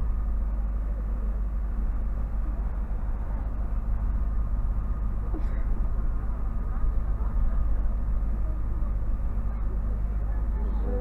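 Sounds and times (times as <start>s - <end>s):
faint steady whine: 0.0s - 11.0s
low engine rumble: 0.0s - 11.0s.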